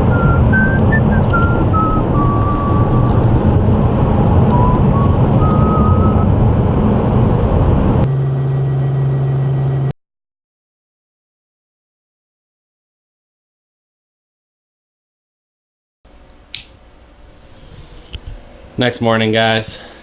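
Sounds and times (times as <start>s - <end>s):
vehicle engine rumble: 0.0s - 9.9s.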